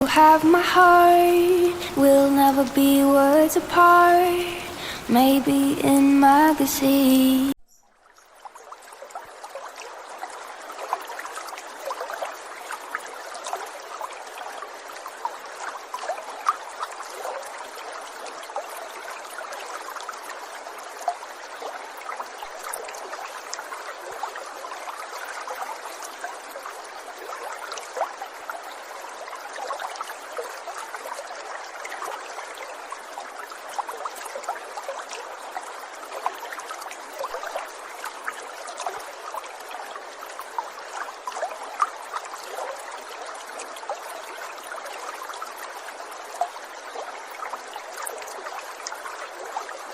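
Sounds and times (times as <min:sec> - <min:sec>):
water trickling and gurgling: 0:00.0 - 0:49.9.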